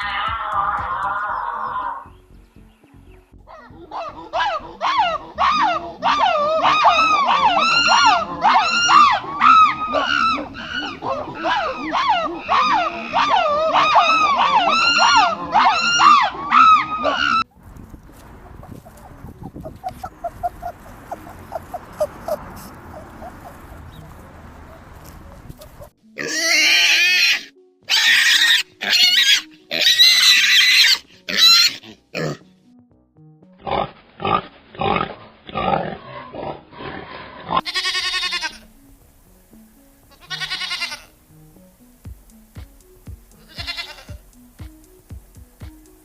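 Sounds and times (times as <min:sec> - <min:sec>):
background music: 0:00.0 - 0:46.0
wavering bleats: 0:03.5 - 0:17.5, 0:18.7 - 0:32.5, 0:33.6 - 0:38.8, 0:40.1 - 0:41.2, 0:43.4 - 0:44.4
small animal squeaking: 0:18.5 - 0:25.9
animal grunts: 0:19.5 - 0:24.0, 0:31.8 - 0:32.4, 0:33.6 - 0:37.7.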